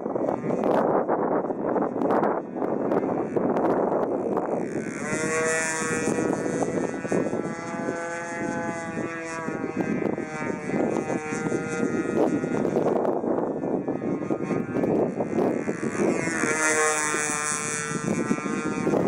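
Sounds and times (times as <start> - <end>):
model airplane motor whine: 0.0 - 19.0
wind buffeting microphone: 0.0 - 19.0.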